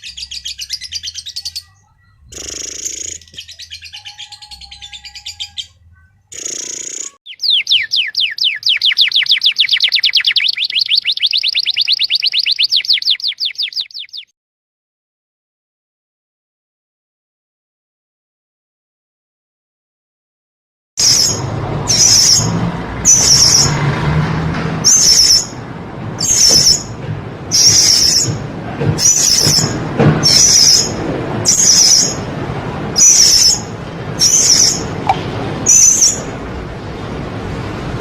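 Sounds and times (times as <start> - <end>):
parrot calling shrill notes: 0.0 - 14.3, 21.0 - 23.8, 27.5 - 28.4, 29.0 - 32.2, 33.0 - 36.3.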